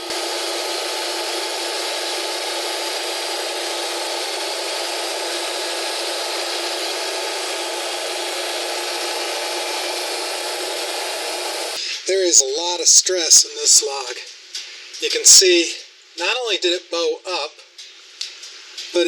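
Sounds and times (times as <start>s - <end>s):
band saw cutting log: 0.0s - 11.8s.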